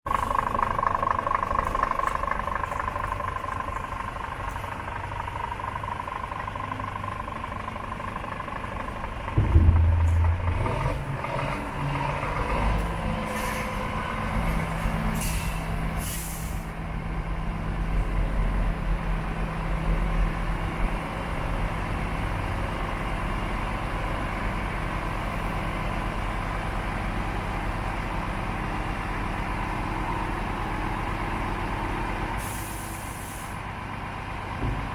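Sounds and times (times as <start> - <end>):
diesel truck engine starting and idling: 0.1 - 34.9
steady tone: 9.4 - 11.4
compressed air hisses: 32.4 - 33.6.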